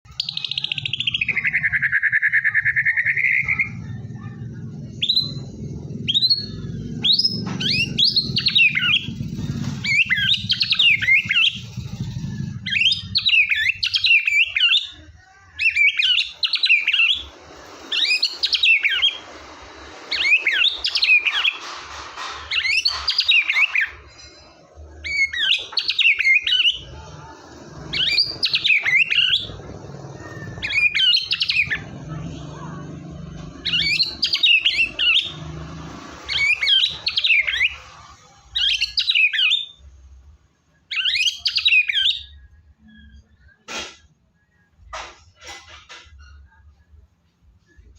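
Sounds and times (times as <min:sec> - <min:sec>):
bird singing whistles and warbles: 0:00.1 - 0:03.8, 0:05.0 - 0:15.0, 0:15.6 - 0:17.3, 0:17.9 - 0:19.2, 0:20.1 - 0:21.6, 0:22.5 - 0:24.0, 0:25.0 - 0:27.0, 0:27.8 - 0:31.9, 0:33.4 - 0:35.6, 0:36.3 - 0:37.9, 0:38.5 - 0:39.8, 0:40.9 - 0:43.7.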